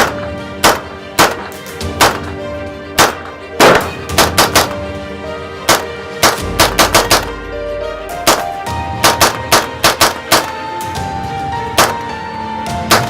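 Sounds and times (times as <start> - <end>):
pistol shots: 0.0 - 2.4, 3.0 - 4.8, 5.7 - 7.3, 9.0 - 10.6, 11.8 - 12.0
background music: 0.0 - 13.0.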